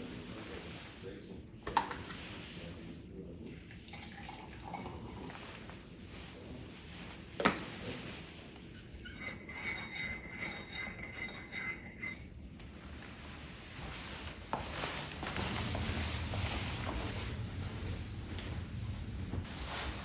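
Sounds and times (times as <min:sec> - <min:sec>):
glass and dishes clinking: 0:03.9 - 0:05.4, 0:09.0 - 0:12.5.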